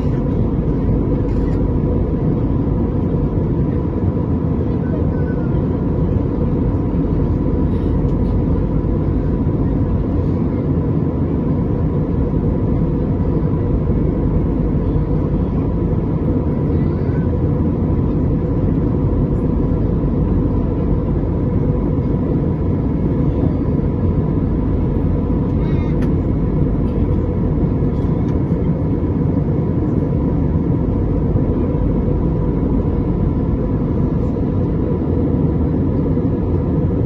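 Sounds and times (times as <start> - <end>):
faint steady hum: 0.0 - 37.0
vehicle travel rumble: 0.0 - 37.0.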